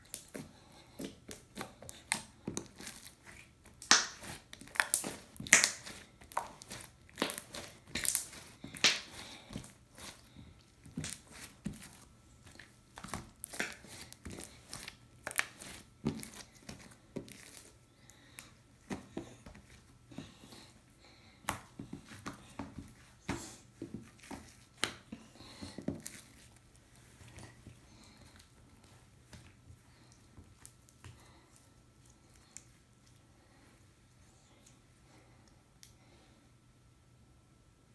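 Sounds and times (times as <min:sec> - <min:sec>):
slime squished by hand: 0:00.0 - 0:19.8.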